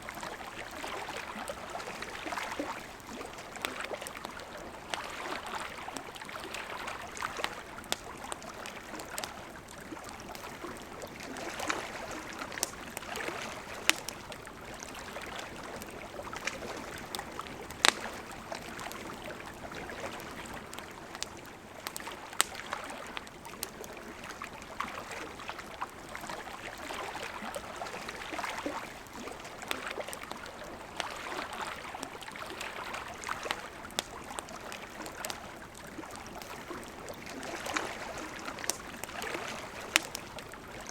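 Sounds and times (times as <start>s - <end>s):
campfire crackling: 0.0s - 40.9s
river water flowing: 0.0s - 40.9s.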